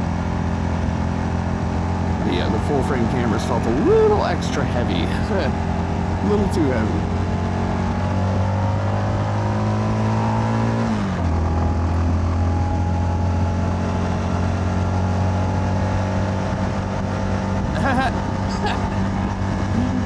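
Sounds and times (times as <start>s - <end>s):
motorcycle engine accelerating: 5.3s - 18.4s.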